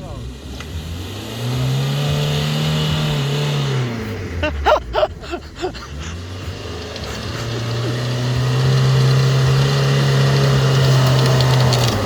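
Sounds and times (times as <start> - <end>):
motorcycle engine running: 5.0 - 12.0.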